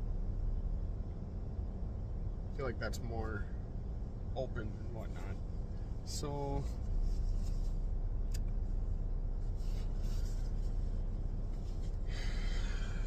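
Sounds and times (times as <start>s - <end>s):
vehicle engine idling: 0.0s - 13.0s
faint click: 8.3s - 8.6s.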